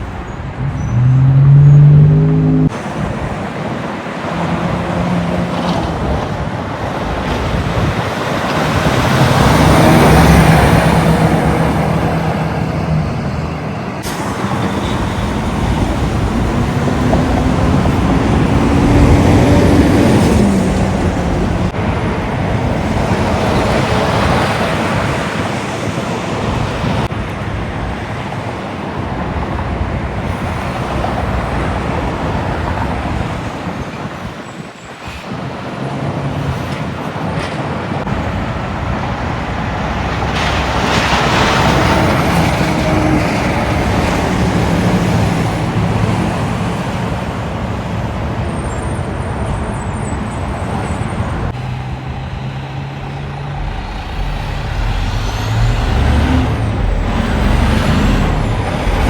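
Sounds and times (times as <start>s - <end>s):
truck engine drone: 0.0s - 28.0s, 50.4s - 59.0s
road traffic passing: 0.0s - 59.0s.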